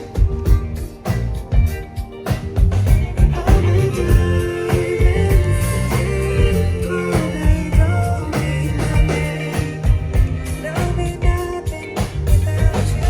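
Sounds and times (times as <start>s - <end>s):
band music: 0.0s - 13.0s
drum kit beat: 0.0s - 13.0s
person singing: 3.2s - 13.0s.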